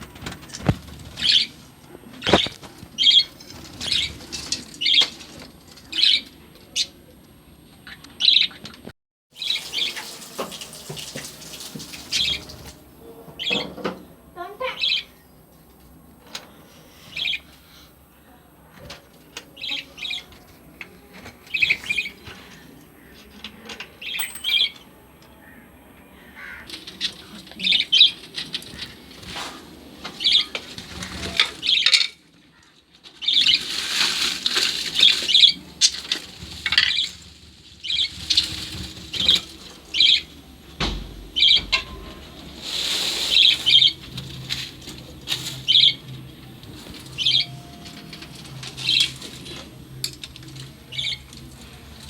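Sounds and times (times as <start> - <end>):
lovebirds chirping: 0.6 - 7.0, 12.0 - 15.8, 16.4 - 29.2, 37.8 - 52.0.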